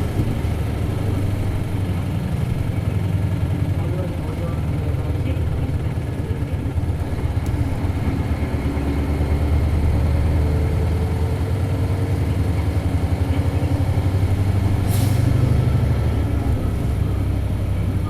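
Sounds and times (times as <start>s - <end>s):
bus diesel engine rumbling: 0.0s - 18.0s.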